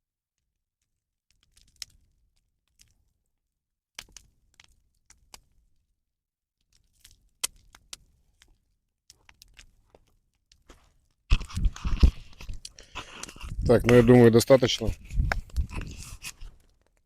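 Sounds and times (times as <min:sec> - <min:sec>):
bonfire crackling and popping: 0:01.3 - 0:03.3, 0:04.0 - 0:05.9, 0:06.6 - 0:17.0.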